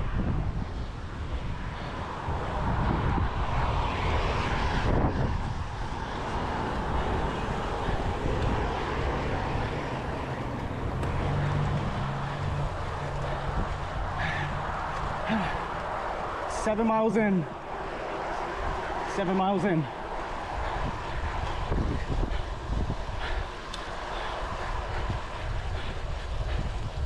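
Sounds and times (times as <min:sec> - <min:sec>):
bicycle road and wind noise: 0:00.0 - 0:27.0
motor traffic: 0:00.0 - 0:27.0
low engine hum: 0:00.2 - 0:16.5.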